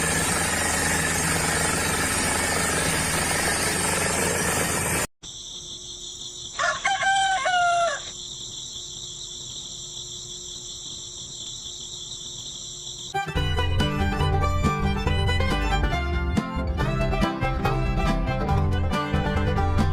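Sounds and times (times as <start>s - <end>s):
insects chirping: 5.2s - 13.3s
rooster crowing: 6.6s - 8.2s.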